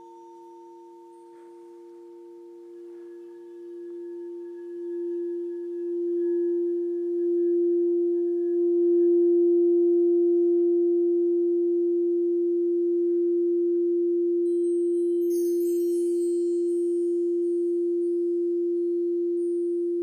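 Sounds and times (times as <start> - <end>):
singing bowl tone: 0.0 - 20.0.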